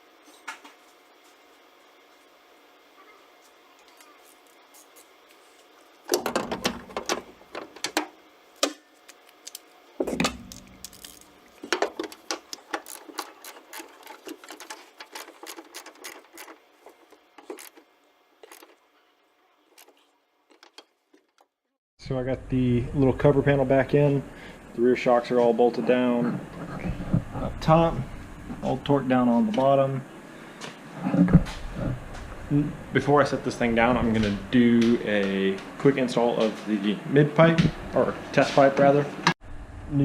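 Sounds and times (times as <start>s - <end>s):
hand tools clicking and knocking: 6.1s - 8.8s, 10.0s - 18.8s, 19.8s - 21.5s.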